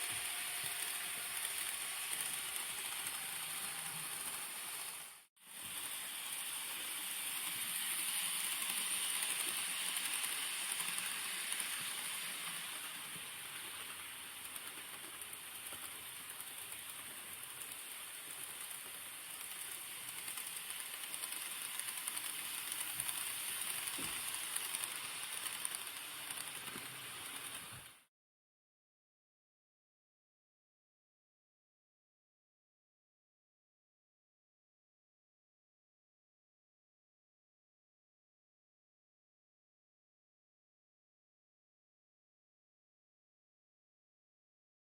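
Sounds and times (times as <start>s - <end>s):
model train rattling on rails: 0.0s - 28.0s.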